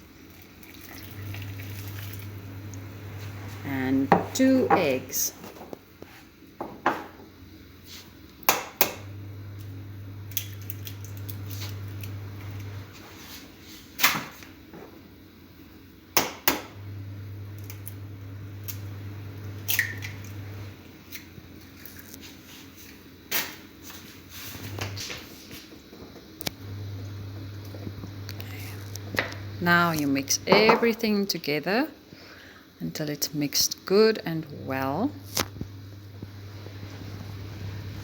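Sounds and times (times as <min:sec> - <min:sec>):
low steady hum: 0:00.0 - 0:05.4, 0:26.4 - 0:38.0
bowl and utensils clinking: 0:30.4 - 0:31.0.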